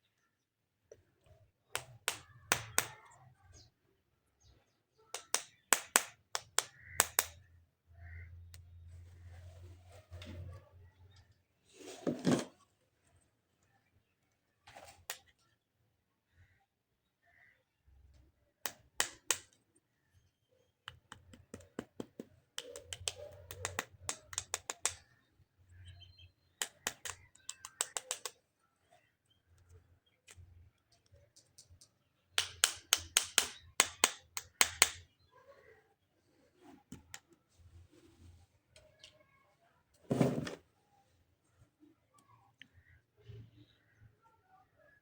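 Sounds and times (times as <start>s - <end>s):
plastic toy parts clicking: 26.6s - 28.4s.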